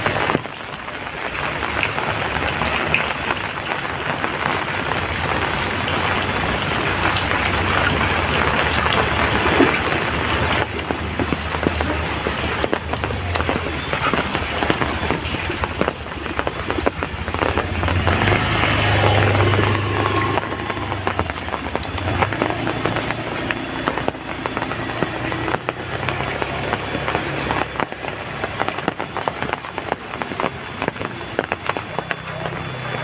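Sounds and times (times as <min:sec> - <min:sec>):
heavy rain patter: 0:00.0 - 0:33.0.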